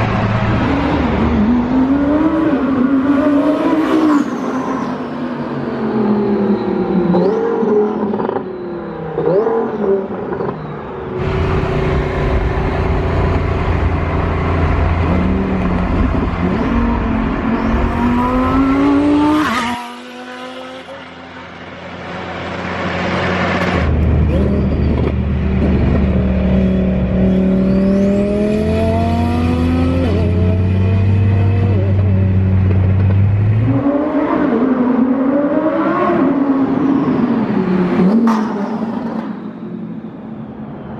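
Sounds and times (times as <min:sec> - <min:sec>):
sports car engine accelerating: 0:11.2 - 0:37.1.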